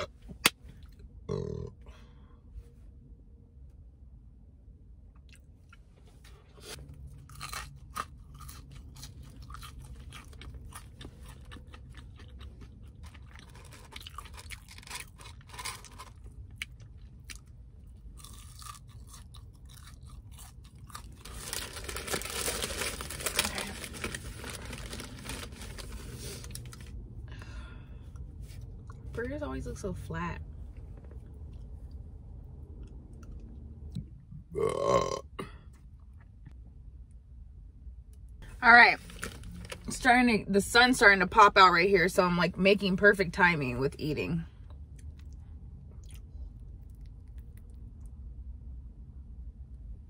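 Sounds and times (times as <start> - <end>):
crunchy chewing: 6.6 - 23.5, 44.9 - 48.1.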